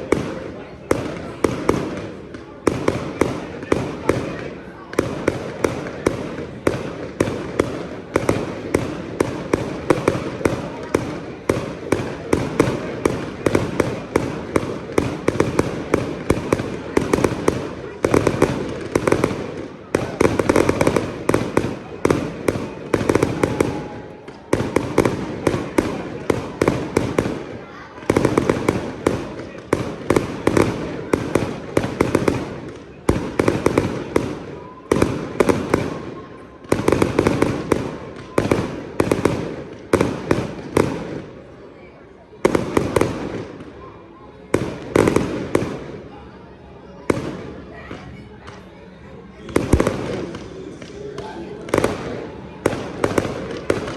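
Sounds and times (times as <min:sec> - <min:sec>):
fireworks bangs: 0:00.0 - 0:41.5, 0:42.3 - 0:43.8, 0:44.4 - 0:46.1, 0:47.1 - 0:48.7, 0:49.4 - 0:53.9.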